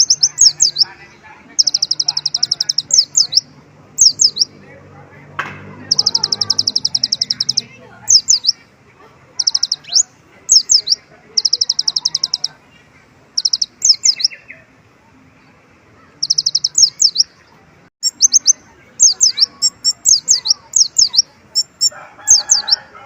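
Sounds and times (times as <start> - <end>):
sunbird singing trills and whistles: 0.0 - 1.0, 1.6 - 4.5, 5.8 - 8.6, 9.4 - 12.6, 13.4 - 14.6, 16.2 - 17.4, 18.0 - 22.8.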